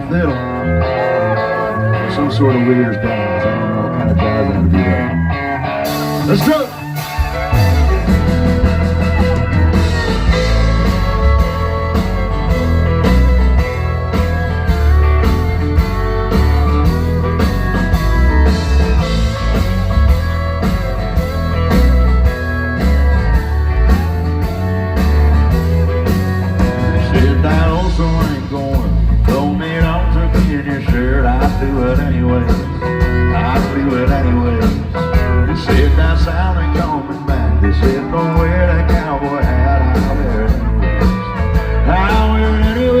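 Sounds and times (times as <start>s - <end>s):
steel guitar sliding: 0.0s - 30.2s
country band playing: 0.0s - 43.0s
fiddle: 0.0s - 43.0s.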